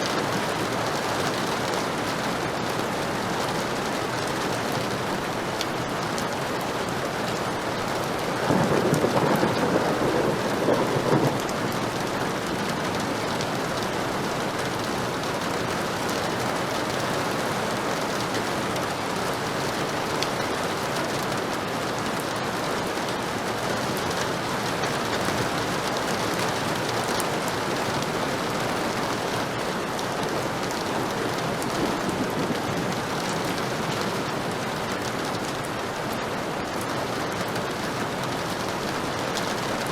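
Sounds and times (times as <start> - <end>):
heavy rain falling: 0.0 - 39.9
thunder rolling: 8.3 - 13.6, 31.4 - 34.0.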